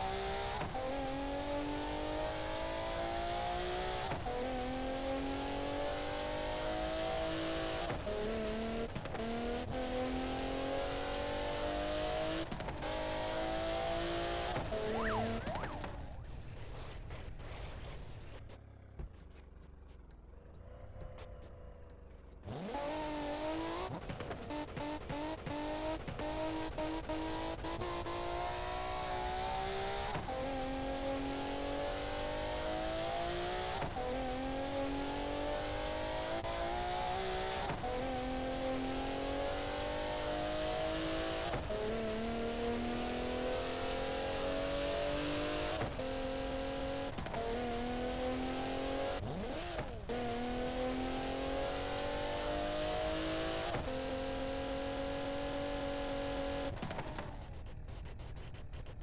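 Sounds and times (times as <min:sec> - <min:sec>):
exhaust crackles: 0:14.6 - 0:22.6.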